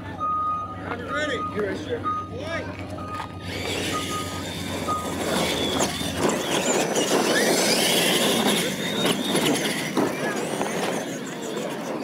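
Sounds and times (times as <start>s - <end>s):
electronic start beeps: 0.2s - 5.9s
toy truck motors whining: 3.1s - 12.0s.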